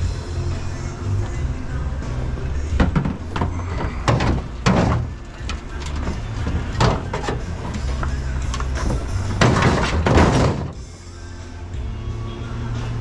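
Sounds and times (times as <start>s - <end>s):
scrap metal clattering: 2.4s - 10.9s.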